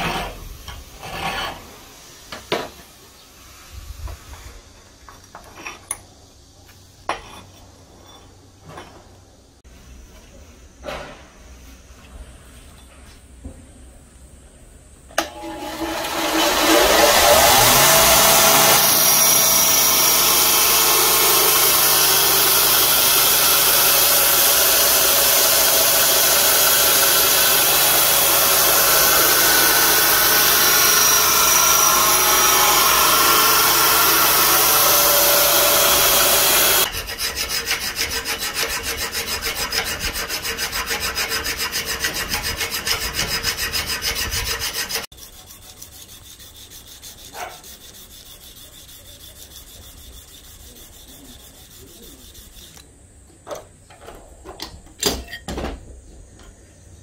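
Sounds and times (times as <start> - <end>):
belt grinder grinding steel blade: 15.2 - 52.9
rhythmic rasping: 16.5 - 52.8
faint rubbing: 45.1 - 52.8.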